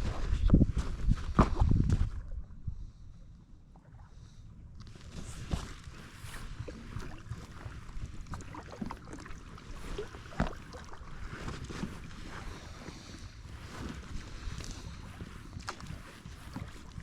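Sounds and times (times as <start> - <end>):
steady low rumble: 0.0 - 5.5
water splashing against hull: 3.2 - 17.0
paddle strokes in water: 3.7 - 17.0.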